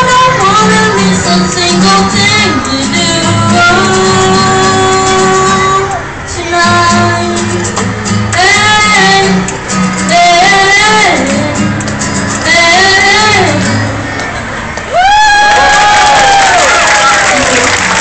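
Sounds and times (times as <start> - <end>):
boy singing: 0.0 - 7.8, 8.4 - 11.6, 12.4 - 14.0
strummed guitar: 0.0 - 14.9.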